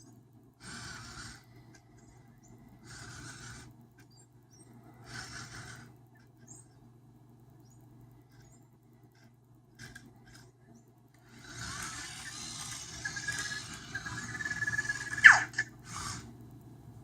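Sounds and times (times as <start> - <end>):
steady high whine: 0.0 - 17.0
small robot motors whirring: 0.6 - 2.2, 2.8 - 6.7, 8.3 - 10.5, 11.2 - 16.4.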